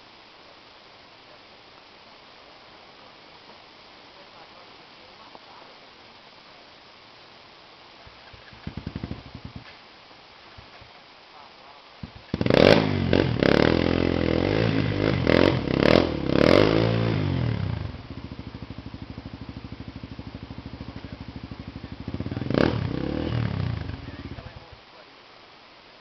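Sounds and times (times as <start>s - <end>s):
motorcycle engine revving: 8.1s - 9.7s, 12.0s - 24.8s.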